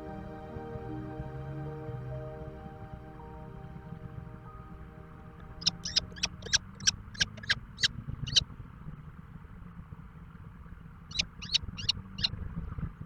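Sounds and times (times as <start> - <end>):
bird high sharp chirps: 5.6 - 8.4, 11.1 - 12.3.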